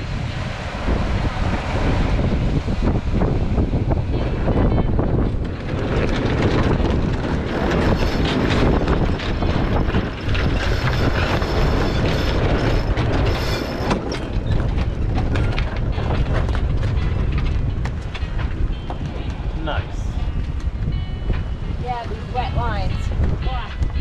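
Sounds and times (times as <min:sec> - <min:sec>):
heavy wind on microphone: 0:00.0 - 0:24.0
ropes creaking and squealing: 0:04.7 - 0:19.4.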